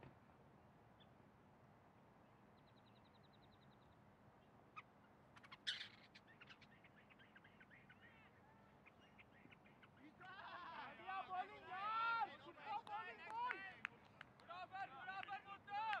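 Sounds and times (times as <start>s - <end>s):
faint bird chirps: 0.9s - 1.2s, 2.2s - 10.5s.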